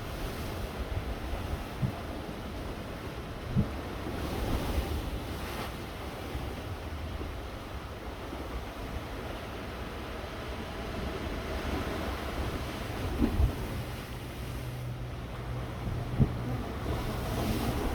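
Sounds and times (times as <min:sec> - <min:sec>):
surf washing: 0:00.0 - 0:17.9
wind buffeting microphone: 0:11.7 - 0:17.9.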